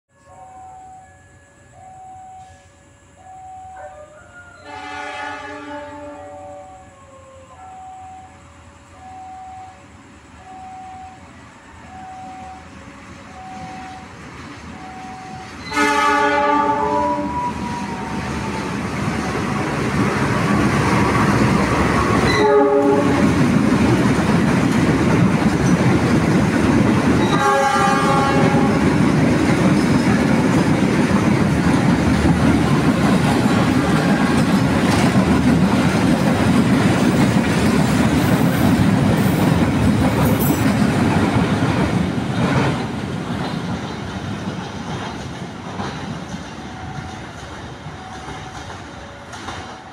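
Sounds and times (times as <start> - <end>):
diesel locomotive horn blasts: 4.6 - 6.9, 14.8 - 19.9, 20.9 - 23.4, 27.2 - 29.0
train wheels rumbling on rails: 11.4 - 49.9.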